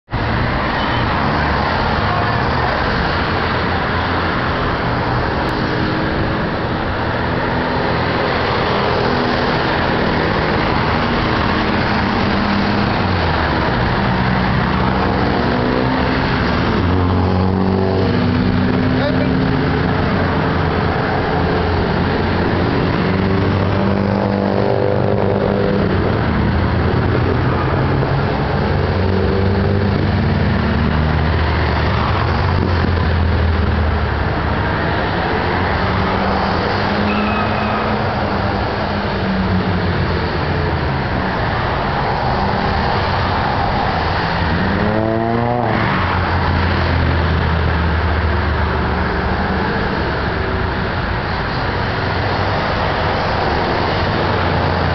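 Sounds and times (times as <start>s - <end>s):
car engines running: 0.0s - 54.9s
passing traffic: 0.0s - 54.9s.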